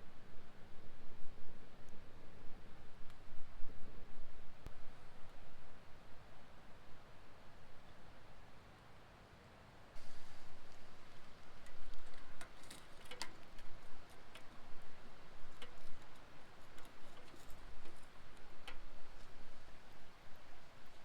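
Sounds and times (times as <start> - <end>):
campfire crackling: 10.0 - 21.0.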